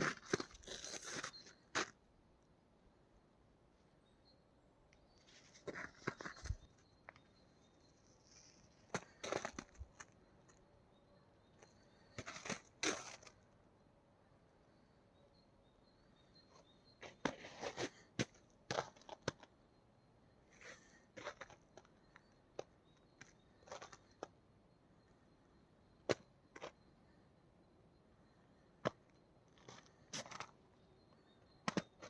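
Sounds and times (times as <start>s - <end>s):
footsteps crunching in snow: 0.0s - 1.9s, 5.4s - 6.7s.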